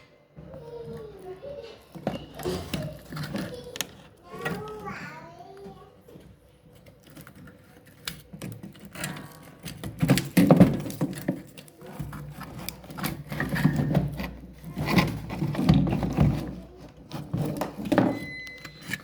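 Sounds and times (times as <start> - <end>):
parts and tools knocking: 6.1 - 19.0.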